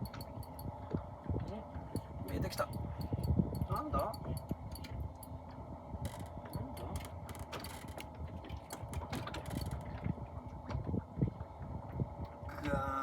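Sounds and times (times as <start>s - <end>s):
fishing reel clicking: 0.0s - 0.7s, 2.3s - 4.9s
steady low hum: 0.0s - 13.0s.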